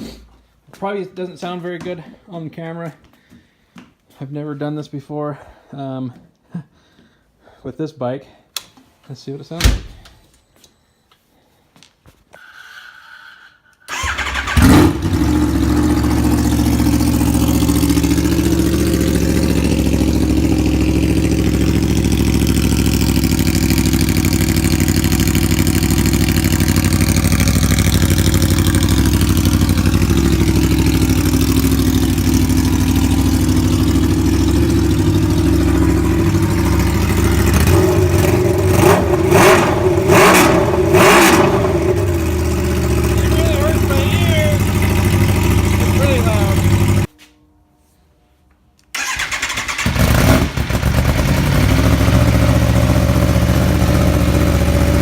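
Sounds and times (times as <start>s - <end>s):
motorcycle engine idling loud: 13.9s - 39.2s, 41.4s - 47.1s, 50.0s - 55.0s
motorcycle engine revving: 13.9s - 47.1s, 49.0s - 55.0s.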